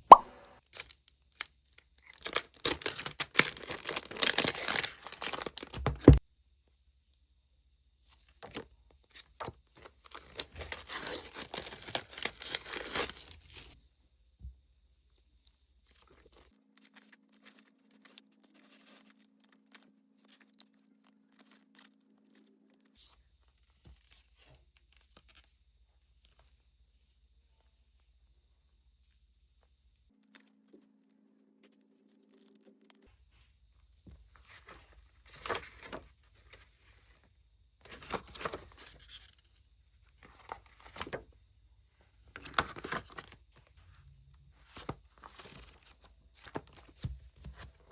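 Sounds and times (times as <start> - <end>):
packaging tearing and crinkling: 2.0 - 5.8, 10.1 - 13.7.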